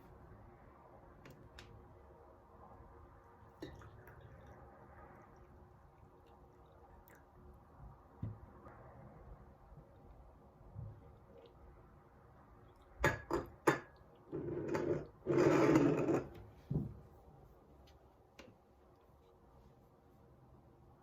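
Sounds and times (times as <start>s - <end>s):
scraping or rubbing: 14.3s - 16.4s.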